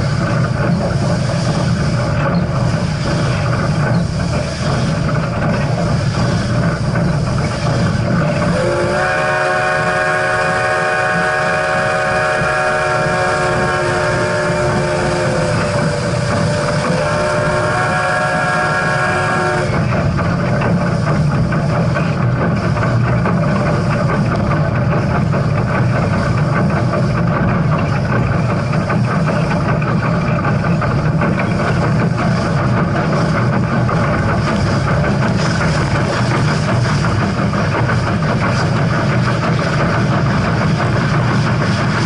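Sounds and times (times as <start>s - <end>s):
train rumbling and clattering: 0.0s - 42.0s
steam locomotive whistle chord: 8.5s - 19.8s.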